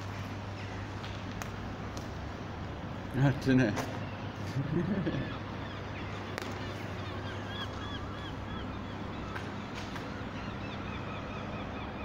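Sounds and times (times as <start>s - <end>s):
bird chirping: 4.0s - 12.0s.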